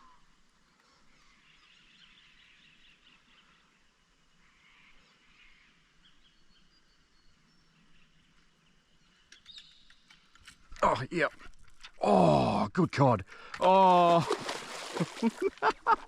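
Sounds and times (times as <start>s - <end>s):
distant birds calling: 4.4s - 12.4s, 13.2s - 16.0s.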